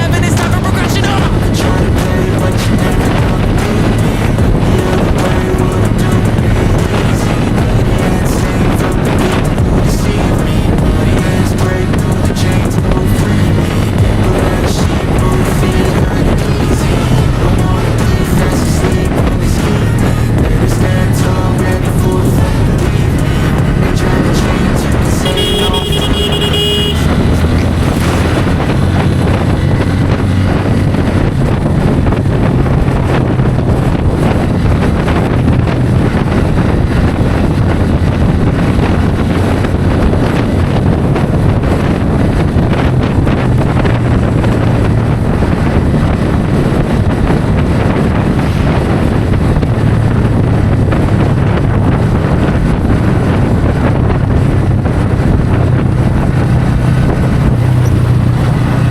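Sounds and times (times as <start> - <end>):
motorcycle engine cruising: 0.0 - 58.9
wind buffeting microphone: 0.0 - 58.9
vehicle horn: 24.0 - 29.6.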